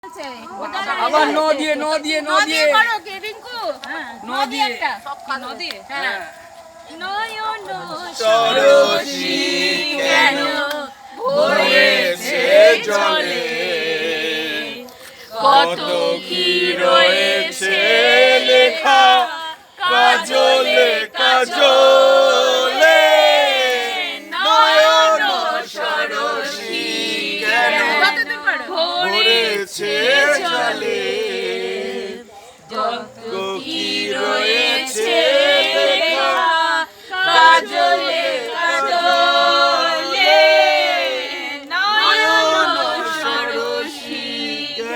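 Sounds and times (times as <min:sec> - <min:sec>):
group of people singing: 0:00.6 - 0:02.9, 0:07.7 - 0:44.9.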